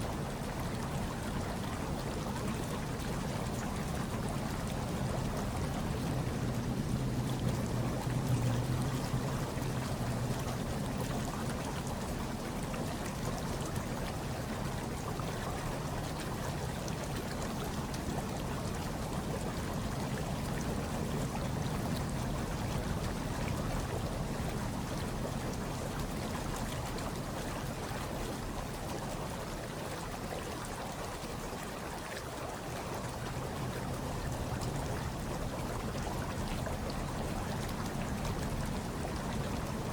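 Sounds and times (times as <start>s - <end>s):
hot tub water churning and bubbling: 0.0s - 39.9s.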